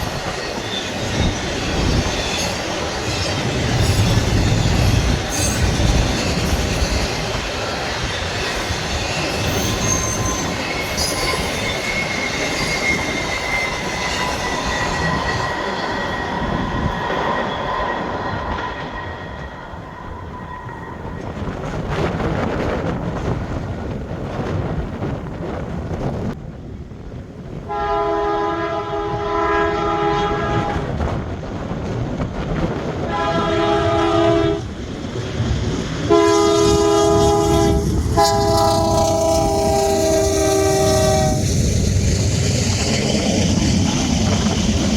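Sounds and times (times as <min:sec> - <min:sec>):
faint wheel squeal: 0:00.0 - 0:21.7
freight train wheels rumbling: 0:00.0 - 0:44.9
locomotive air horn: 0:27.7 - 0:30.9, 0:33.1 - 0:34.7, 0:36.1 - 0:41.5.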